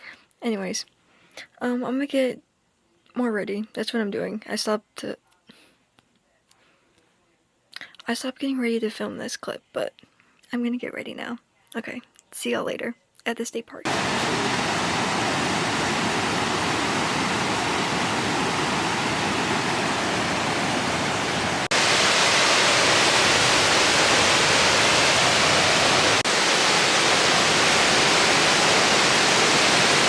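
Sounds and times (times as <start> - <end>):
rush of falling water: 13.9 - 30.0.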